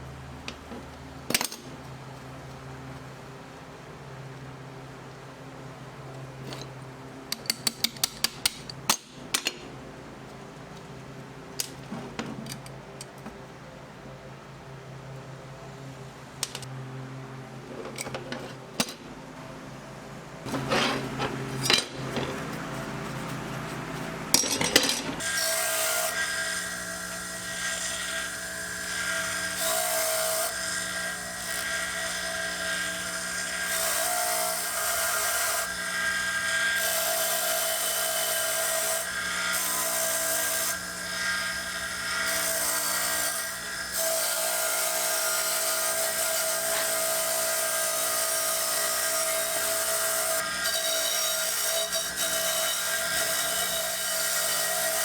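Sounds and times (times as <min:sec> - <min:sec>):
clicks and knocks of parts handled: 0:11.6 - 0:13.4, 0:16.4 - 0:16.7, 0:24.4 - 0:25.2.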